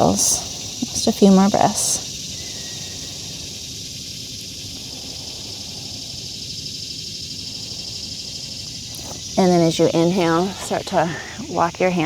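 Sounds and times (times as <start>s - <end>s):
cicadas buzzing: 0.0s - 12.0s
low background rumble: 0.0s - 12.0s.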